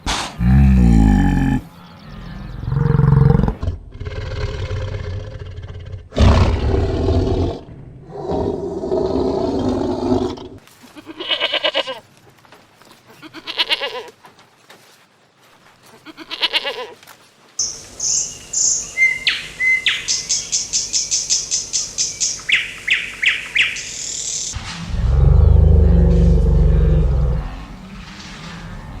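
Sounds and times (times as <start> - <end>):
large animal roaring: 0.4 - 10.6, 24.6 - 29.0
animal bleating: 10.8 - 12.1, 13.1 - 14.2, 15.8 - 17.0.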